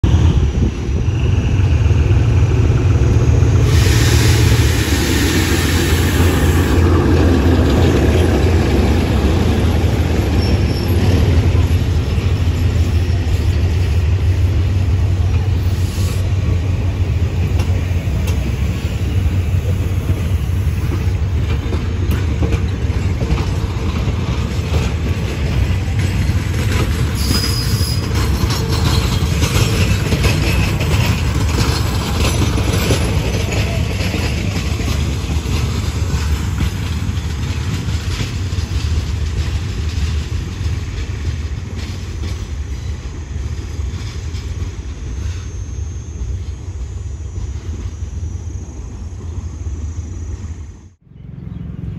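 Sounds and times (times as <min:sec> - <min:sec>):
diesel locomotive passing: 0:00.0 - 0:51.9
train coaches rumbling on rails: 0:00.0 - 0:51.9
high wheel squeals: 0:10.2 - 0:12.9, 0:27.0 - 0:35.6, 0:45.0 - 0:49.2.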